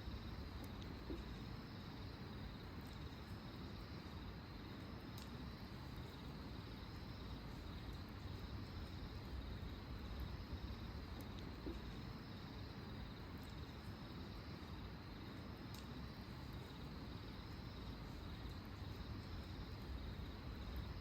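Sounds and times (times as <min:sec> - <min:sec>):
cricket trill: 0:00.0 - 0:21.0.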